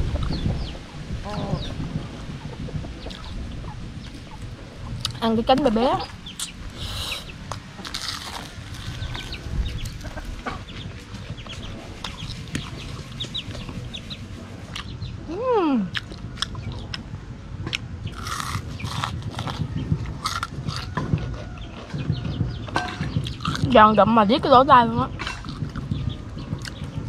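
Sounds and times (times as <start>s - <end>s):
chewing crispy food: 6.4s - 10.5s, 15.9s - 17.1s, 17.7s - 22.0s, 23.2s - 23.8s, 25.2s - 26.0s.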